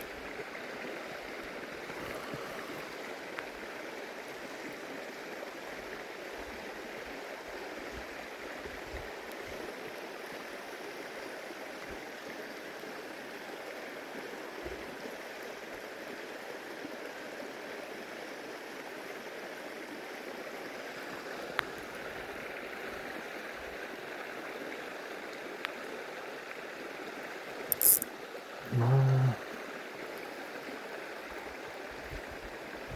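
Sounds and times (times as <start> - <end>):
stream flowing over rocks: 0.0 - 7.9
faint clicks: 27.7 - 28.1.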